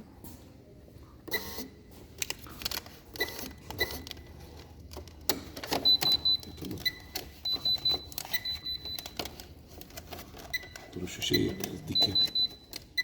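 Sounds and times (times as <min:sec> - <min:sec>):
short electronic beeps: 0:10.5 - 0:13.0.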